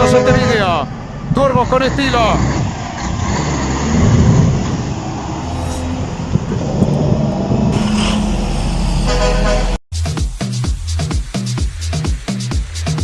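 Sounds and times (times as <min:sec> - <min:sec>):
truck engine running: 0:00.0 - 0:09.8.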